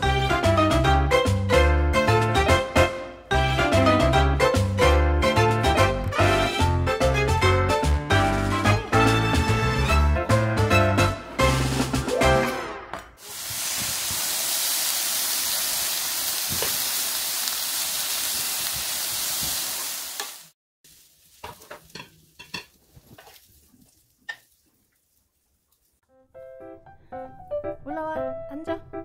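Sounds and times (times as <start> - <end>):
meat sizzling in a frying pan: 13.2 - 23.6.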